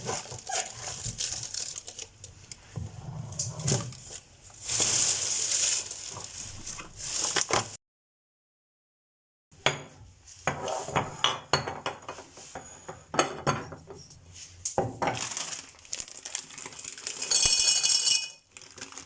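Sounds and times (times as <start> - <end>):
packaging crinkling and rustling: 0.0 - 2.7, 3.4 - 7.8, 15.0 - 17.5, 18.4 - 19.0.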